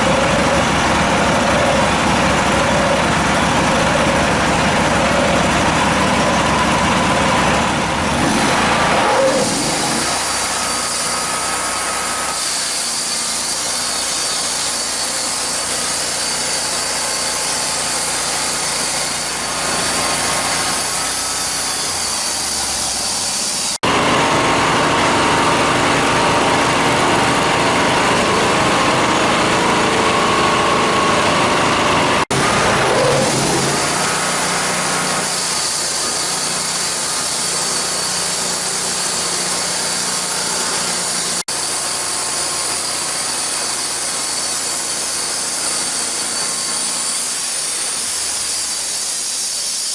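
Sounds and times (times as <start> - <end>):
sawmill cutting a log: 0.0 - 49.9.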